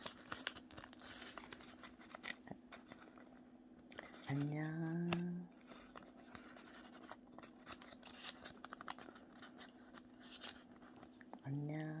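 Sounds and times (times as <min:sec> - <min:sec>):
paper rustling: 0:00.0 - 0:11.1.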